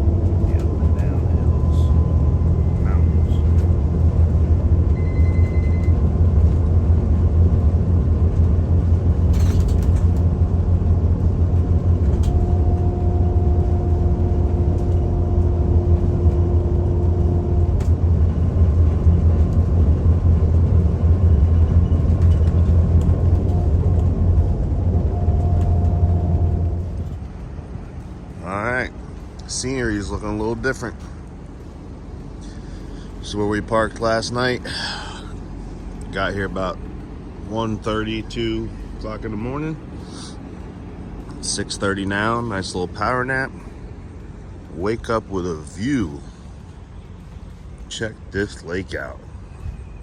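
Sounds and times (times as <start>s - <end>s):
road noise: 0.0s - 50.0s
vehicle engine drone: 0.0s - 50.0s.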